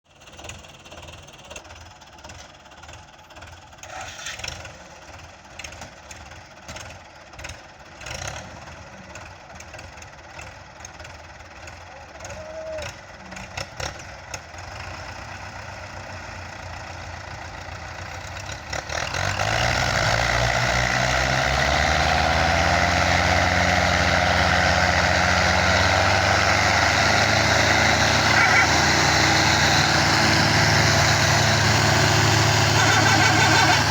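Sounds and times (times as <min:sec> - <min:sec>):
diesel tractor engine running: 0:00.1 - 0:33.9.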